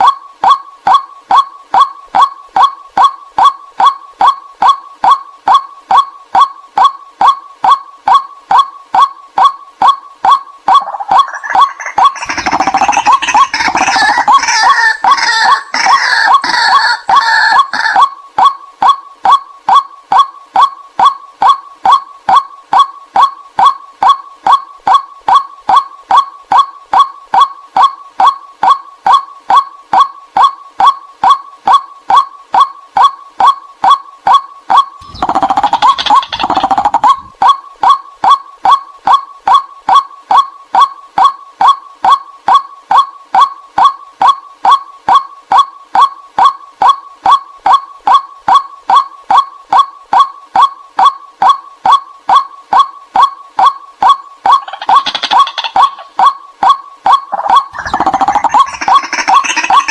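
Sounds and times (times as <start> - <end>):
waterhen calling kwaak notes: 7.2 - 19.0, 34.7 - 38.9, 53.6 - 59.9
harsh chattering and croaking chorus: 10.7 - 18.0, 35.0 - 37.3, 54.6 - 56.3, 57.2 - 59.9.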